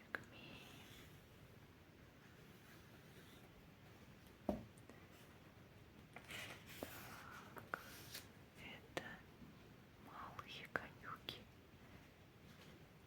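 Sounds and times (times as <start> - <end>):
soft tap on book: 4.5 - 4.7
pages rustling and scratching: 6.2 - 8.3.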